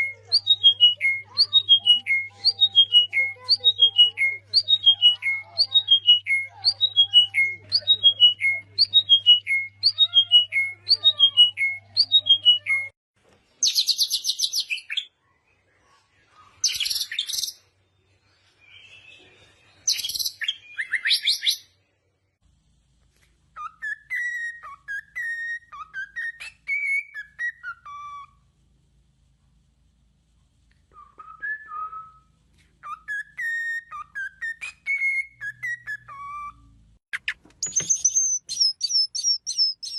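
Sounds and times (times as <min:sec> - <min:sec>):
whistled bird notes: 0:30.9 - 0:39.9.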